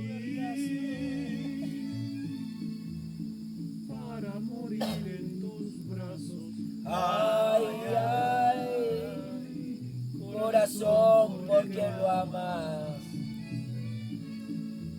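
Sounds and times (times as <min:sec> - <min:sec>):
man singing: 0:00.0 - 0:02.4, 0:03.9 - 0:13.1
acoustic guitar: 0:00.0 - 0:14.9.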